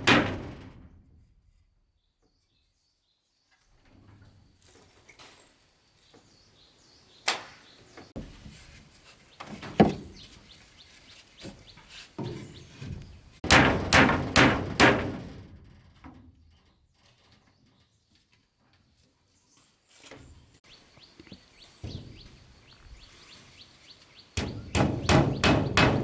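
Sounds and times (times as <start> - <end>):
knocks and thuds: 0.0 - 1.2, 12.2 - 15.7, 21.8 - 22.5, 24.4 - 26.0.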